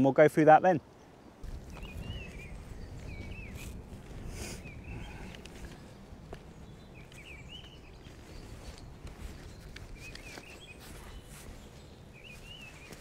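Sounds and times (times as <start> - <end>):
wind rumble on microphone: 1.4 - 13.0
camera gear clicks and rustles: 9.4 - 10.7.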